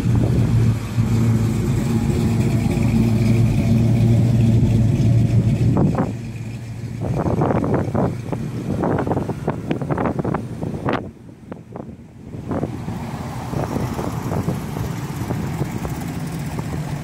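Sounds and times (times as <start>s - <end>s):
car engine passing: 0.0s - 17.0s
wind gusts on microphone: 6.9s - 17.0s.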